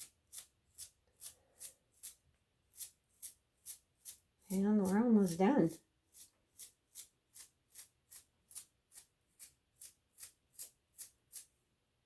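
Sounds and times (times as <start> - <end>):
toothbrush bristles flicking: 0.0 - 11.5.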